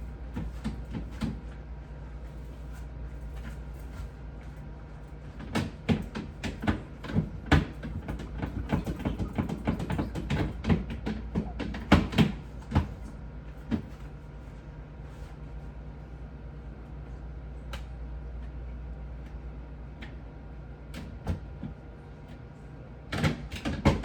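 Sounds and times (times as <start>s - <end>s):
steady low hum: 0.0s - 24.0s
refrigerator shelves and containers clattering: 2.4s - 14.2s, 23.1s - 24.0s.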